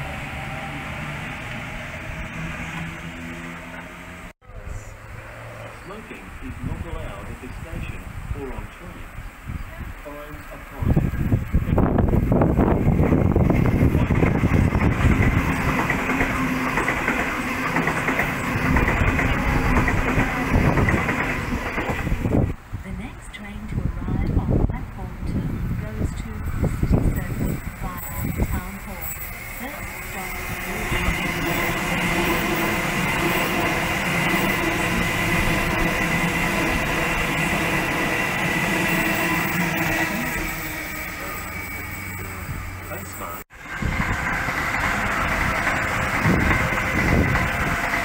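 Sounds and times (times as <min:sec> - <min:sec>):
electric train humming: 0:00.0 - 0:48.0
wheels clacking over rail joints: 0:12.8 - 0:22.6, 0:27.2 - 0:48.0
electric traction motor whine: 0:26.2 - 0:48.0.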